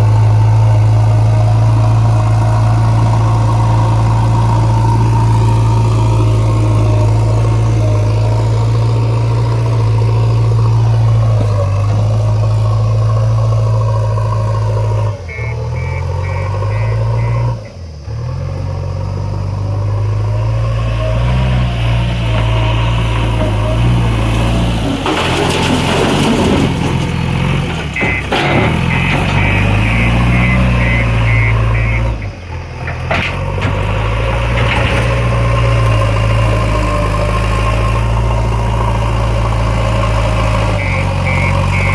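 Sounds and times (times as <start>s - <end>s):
heavy diesel engine droning: 0.0s - 41.9s
short high beeps: 15.3s - 17.5s, 28.9s - 32.2s, 40.8s - 41.9s.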